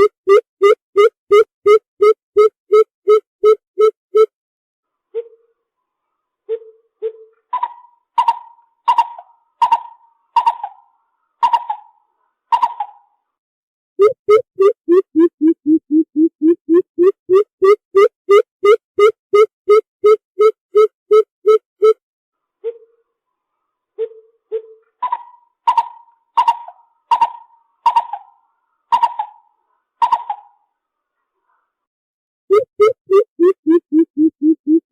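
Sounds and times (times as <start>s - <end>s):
bird hollow popping calls: 6.5s - 10.8s, 14.0s - 22.0s, 24.0s - 29.4s, 30.0s - 30.5s, 32.5s - 34.9s.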